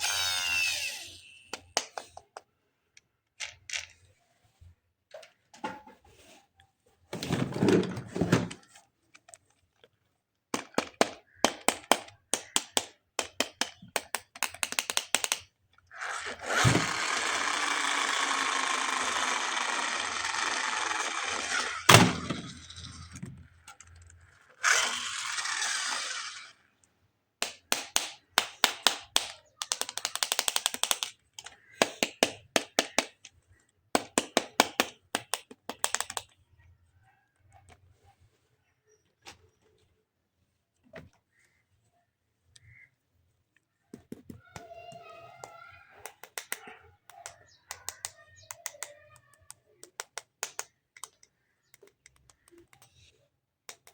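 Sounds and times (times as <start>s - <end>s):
plastic toy parts clicking: 0.0s - 4.1s, 8.5s - 36.4s, 44.0s - 53.9s.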